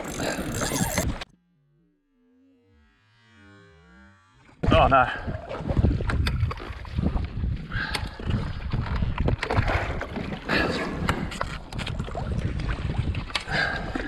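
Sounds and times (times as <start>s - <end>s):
wind buffeting microphone: 4.7s - 10.4s, 11.0s - 14.0s
water splashing around kayak: 4.7s - 14.0s.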